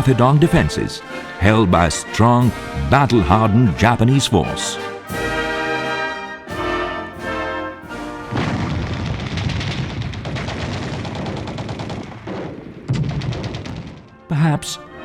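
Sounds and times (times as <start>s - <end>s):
brass orchestral music: 0.0s - 9.0s, 14.2s - 15.0s
booms: 6.5s - 14.4s
machine-gun fire: 8.0s - 14.2s.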